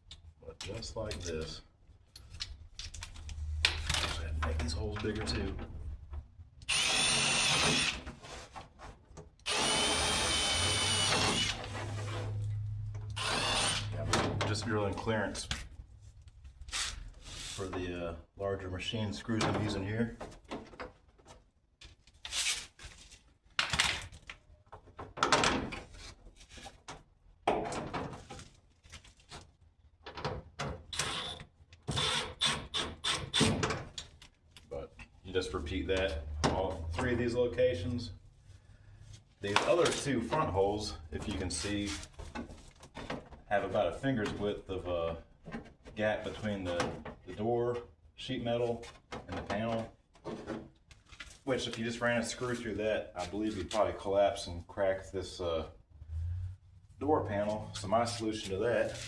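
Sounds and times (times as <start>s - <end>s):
power drill whining: 6.7s - 8.0s, 9.5s - 11.7s, 13.2s - 14.0s, 30.9s - 33.2s.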